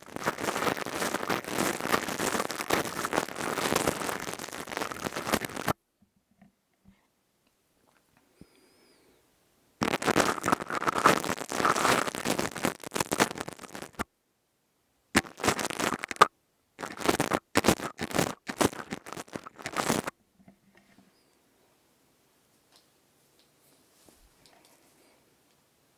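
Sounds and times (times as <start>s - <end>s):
crystal tube scraping microphone: 0.0s - 5.8s, 9.8s - 14.0s, 15.2s - 20.1s.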